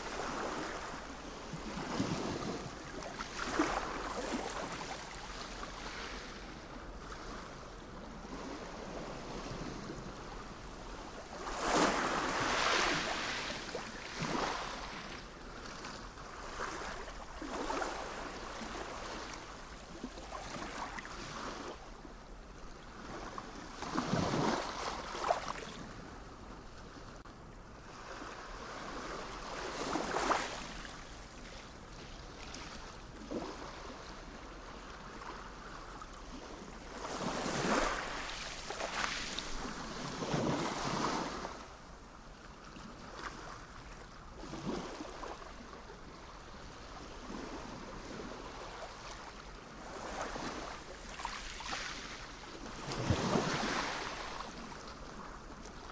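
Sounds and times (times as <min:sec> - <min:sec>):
sea waves breaking: 0:00.0 - 0:07.4, 0:11.3 - 0:21.8, 0:37.0 - 0:41.7, 0:46.9 - 0:55.9.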